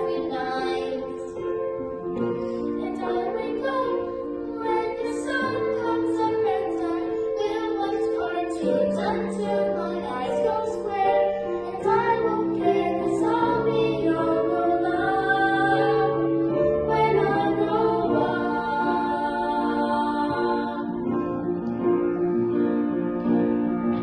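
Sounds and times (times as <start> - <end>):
children singing a show tune: 0.0 - 1.4, 2.8 - 16.2
instrumental accompaniment: 0.0 - 24.0.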